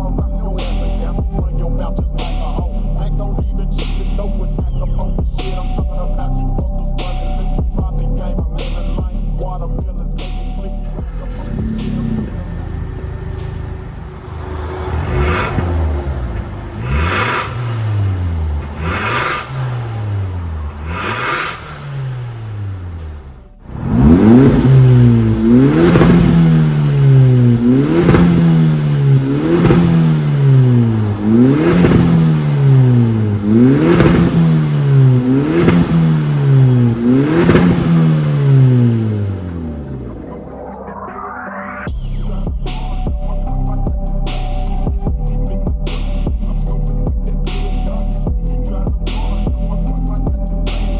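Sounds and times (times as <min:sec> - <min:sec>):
car engine revving through exhaust: 0:10.8 - 0:40.9, 0:42.3 - 0:50.9.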